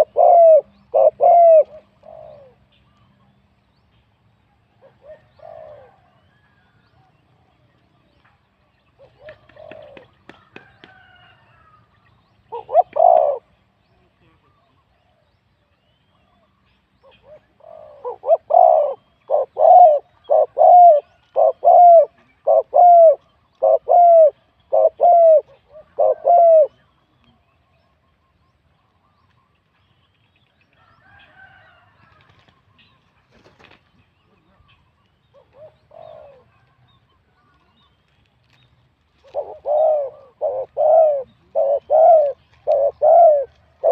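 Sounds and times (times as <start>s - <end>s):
dove cooing: 0.0s - 2.7s, 4.8s - 6.2s, 9.0s - 10.2s, 12.5s - 13.6s, 17.0s - 26.9s, 35.3s - 36.9s, 39.2s - 43.9s.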